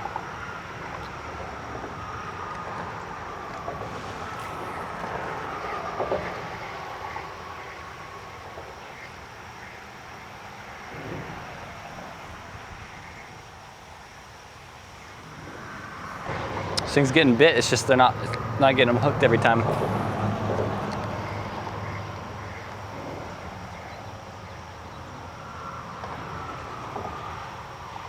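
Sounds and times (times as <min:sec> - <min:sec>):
distant road traffic: 0:00.0 - 0:28.0
passing vehicle falling tone: 0:01.6 - 0:09.0, 0:15.1 - 0:28.0.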